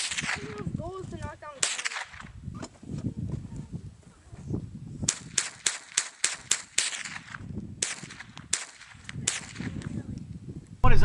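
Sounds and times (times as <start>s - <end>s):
rifle shots cracking: 1.6s - 2.2s.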